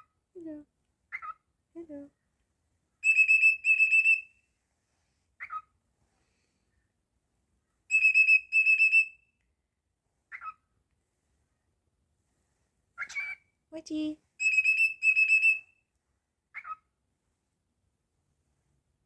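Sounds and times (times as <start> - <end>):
cockatiel whistling: 3.0 - 4.3, 7.9 - 9.2, 14.4 - 15.6.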